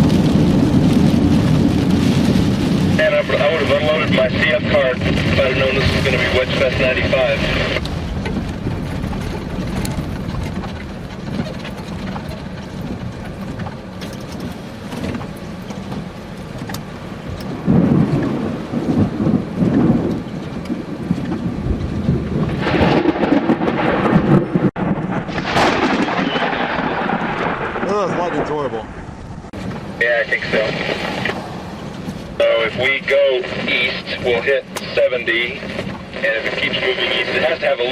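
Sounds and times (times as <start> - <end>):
rush of noise: 0.0 - 10.8, 22.4 - 37.9
low rumble of thunder: 0.0 - 37.9
steady rain: 0.0 - 37.9.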